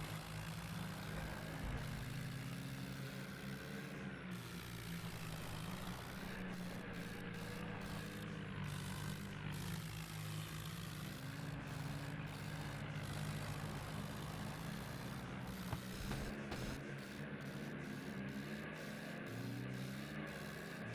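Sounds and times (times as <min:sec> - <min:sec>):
tractor engine running: 0:00.0 - 0:03.8, 0:04.4 - 0:10.2, 0:11.0 - 0:17.6.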